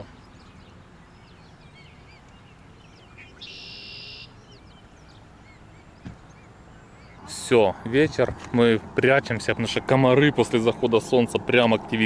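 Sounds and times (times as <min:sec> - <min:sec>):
buzzy bird trill: 0:00.0 - 0:07.3
small birds chirping: 0:00.0 - 0:12.0.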